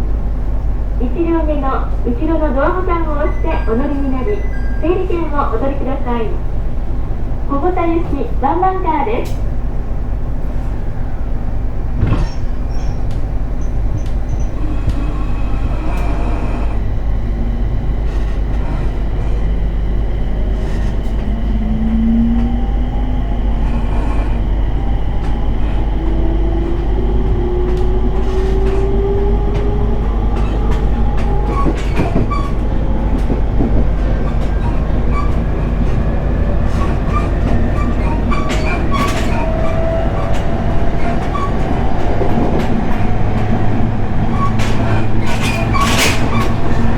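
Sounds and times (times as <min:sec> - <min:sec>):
train steady rumble: 0:00.0 - 0:46.9
wheels clicking over rail joints: 0:23.6 - 0:46.9.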